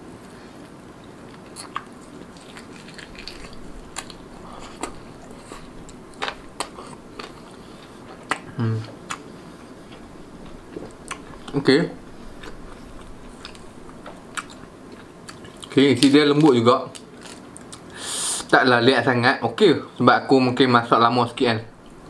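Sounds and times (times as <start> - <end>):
chewing with wet smacks: 0.6 - 16.1.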